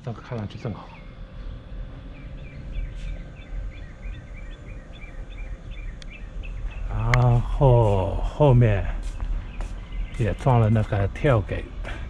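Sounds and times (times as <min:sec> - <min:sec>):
low background rumble: 0:00.0 - 0:12.0
bird chirping: 0:00.4 - 0:12.0.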